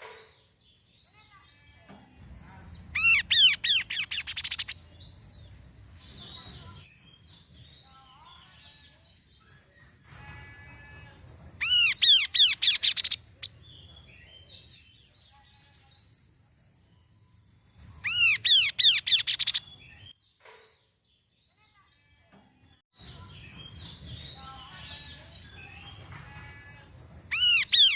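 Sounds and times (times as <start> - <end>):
bird chirping: 0.0 - 27.9
bird singing whistled notes: 2.6 - 5.4, 11.6 - 20.3, 27.3 - 27.9.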